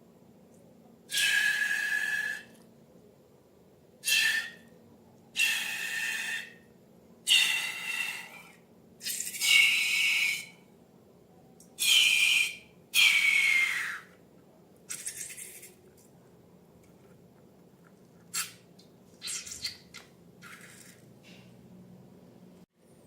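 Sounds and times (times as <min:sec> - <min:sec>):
air squealing out of balloon: 0:01.1 - 0:02.5, 0:04.0 - 0:04.6.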